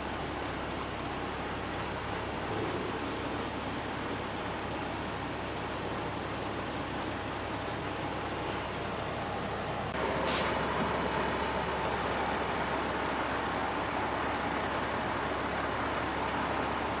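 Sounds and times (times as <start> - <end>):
large vehicle engine running: 0.0 - 17.0
air release hiss: 10.2 - 10.6.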